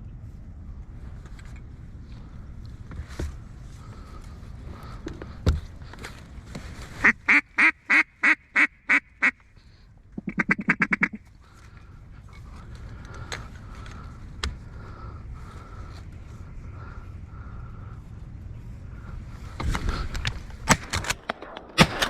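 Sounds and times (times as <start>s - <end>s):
duck call quacks: 7.0s - 9.5s, 10.2s - 11.2s.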